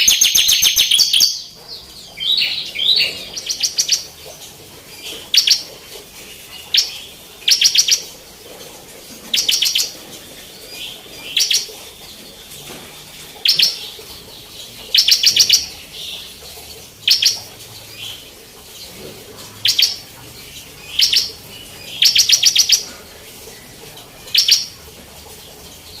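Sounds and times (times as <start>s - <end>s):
bird singing rapid high notes: 0.0s - 8.2s, 13.3s - 18.8s, 19.6s - 22.9s, 24.2s - 24.8s.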